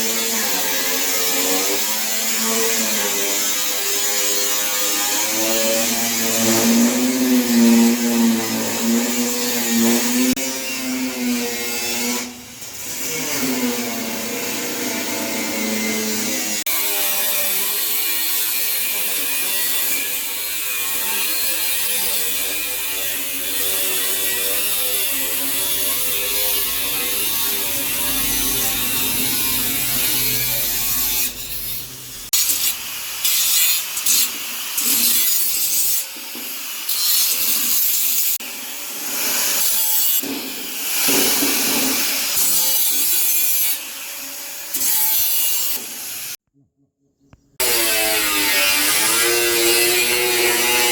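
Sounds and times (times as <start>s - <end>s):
power tool whining: 18.9s - 33.4s.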